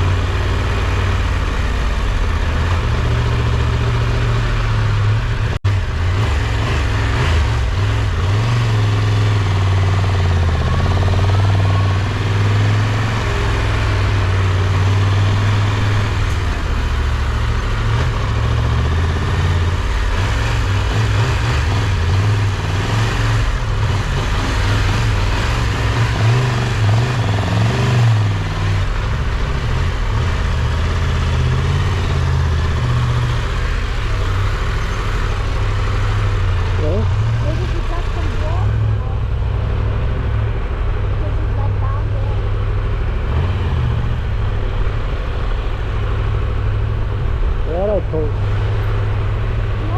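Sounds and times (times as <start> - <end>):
motorcycle engine revving: 0.0 - 49.9
steady rushing noise: 12.1 - 41.6, 42.4 - 49.9.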